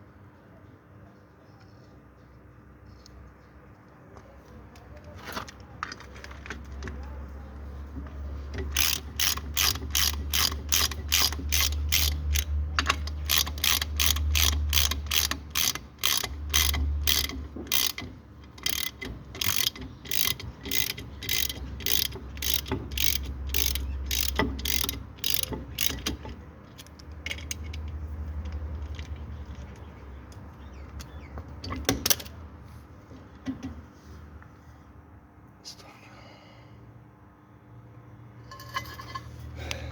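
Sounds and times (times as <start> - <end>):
ratchet wrench clicking: 8.6 - 27.8.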